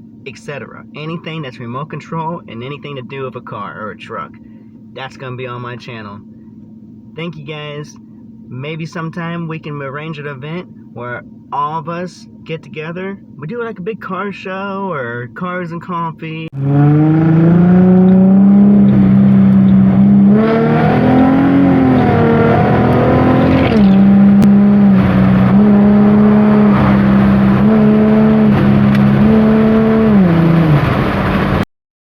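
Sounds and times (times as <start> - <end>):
engine revving: 16.6 - 31.6.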